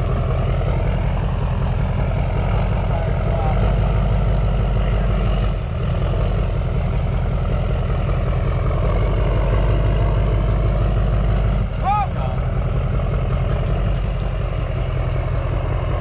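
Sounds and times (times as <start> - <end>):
pickup truck engine rumble: 0.0 - 16.0
road noise: 0.0 - 16.0.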